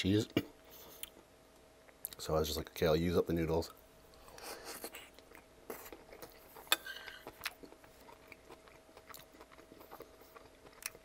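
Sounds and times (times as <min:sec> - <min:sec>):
chewing pasta: 0:04.4 - 0:11.0.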